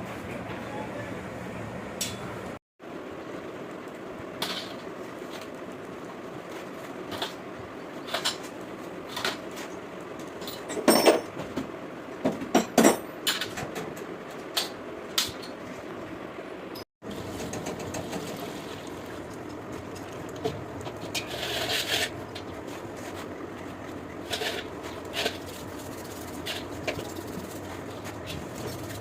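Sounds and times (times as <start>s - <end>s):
tools and parts clattering: 8.0s - 11.6s, 12.3s - 15.6s.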